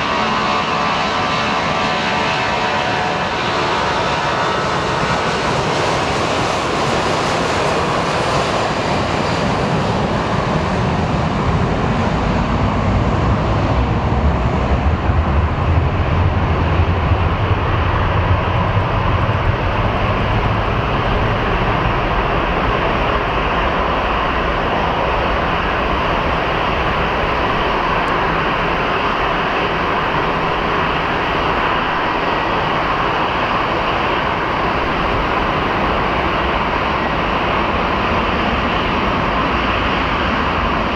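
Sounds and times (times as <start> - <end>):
jet engine rumble: 0.0 - 40.9.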